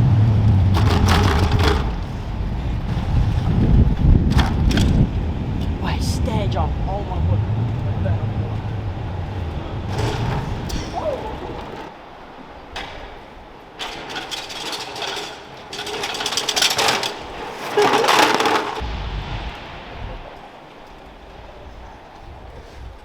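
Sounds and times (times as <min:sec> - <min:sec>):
bicycle clattering over hard knocks: 0:00.0 - 0:05.8, 0:09.2 - 0:12.0, 0:12.6 - 0:18.8.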